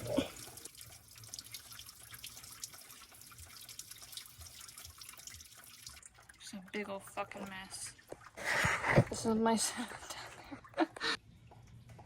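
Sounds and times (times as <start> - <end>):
coolant dripping and trickling: 0.0 - 9.0.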